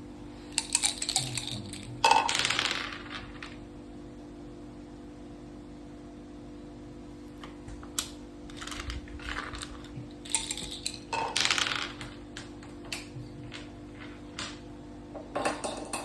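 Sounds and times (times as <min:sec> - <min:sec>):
dice clicking and rattling on board: 0:00.5 - 0:03.6, 0:07.9 - 0:14.6.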